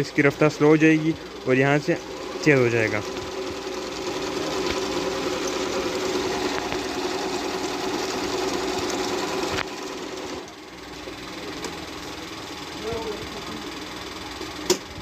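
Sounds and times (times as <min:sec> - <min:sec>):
electric sewing machine stitching: 0:00.0 - 0:15.0.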